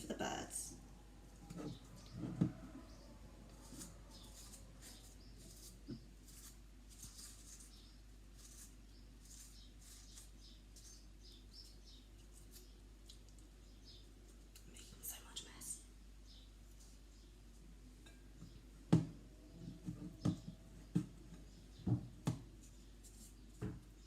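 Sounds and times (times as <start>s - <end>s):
spatula scraping sticky spread: 3.5s - 11.0s.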